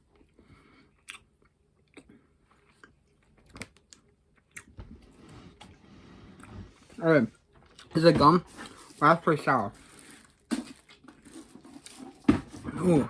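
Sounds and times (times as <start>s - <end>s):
person chewing candy: 0.2s - 4.8s.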